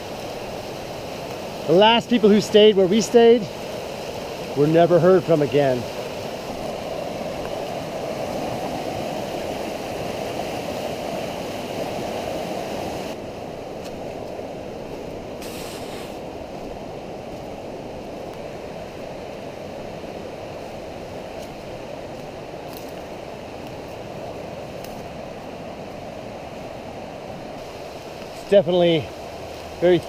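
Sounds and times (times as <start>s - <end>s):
river rushing: 0.0s - 30.0s
brief hiss: 15.4s - 16.2s.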